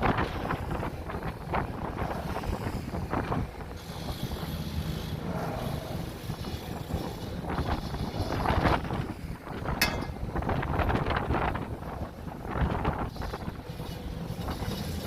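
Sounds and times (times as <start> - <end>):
wind buffeting microphone: 0.0 - 15.0
pile driver rumbling: 9.8 - 10.7.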